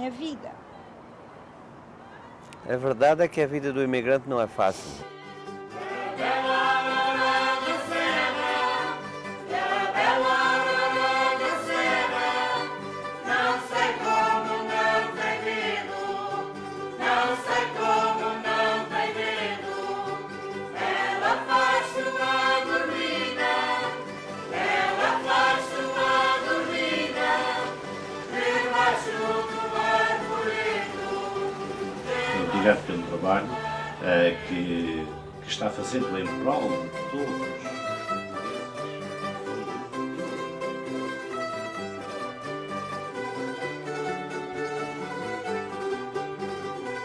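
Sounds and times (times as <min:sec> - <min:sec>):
choir singing: 0:05.0 - 0:38.0.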